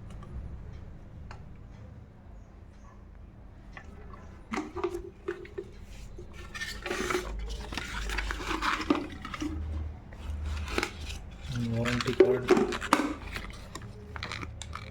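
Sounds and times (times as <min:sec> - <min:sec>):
packaging rustling: 0:04.4 - 0:14.9.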